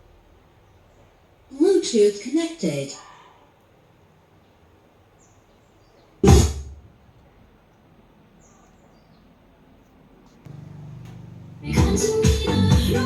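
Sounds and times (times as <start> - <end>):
steady low hum: 10.3 - 13.0.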